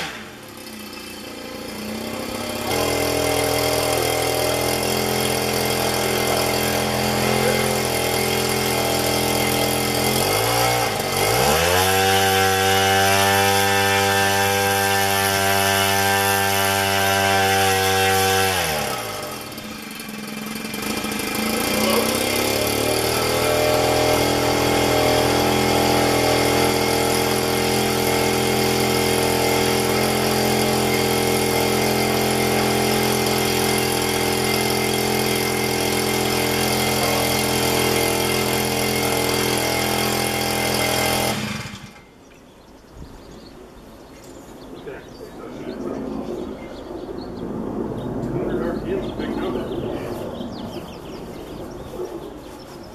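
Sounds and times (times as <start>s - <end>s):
two-stroke engine spinning propeller: 0.0s - 42.2s.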